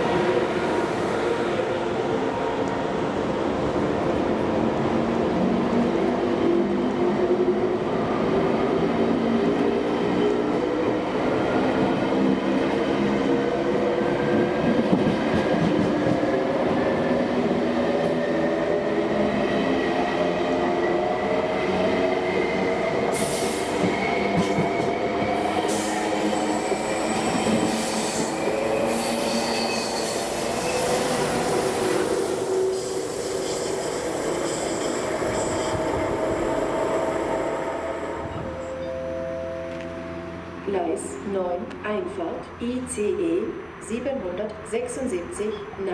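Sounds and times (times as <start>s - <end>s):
wheels squealing on rails: 22.1s - 38.9s.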